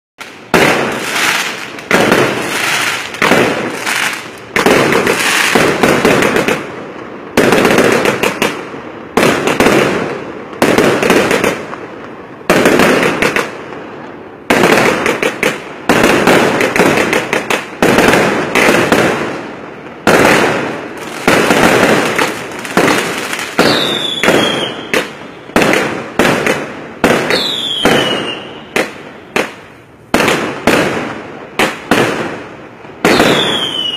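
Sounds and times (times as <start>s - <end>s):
fireworks bangs with crackle: 0.2s - 33.9s
falling firework whistle: 21.0s - 25.6s, 27.2s - 28.9s, 33.0s - 33.9s.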